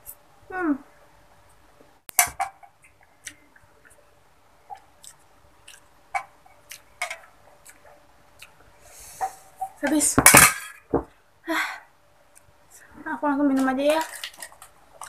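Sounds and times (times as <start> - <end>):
person chewing noodles: 4.6 - 9.5.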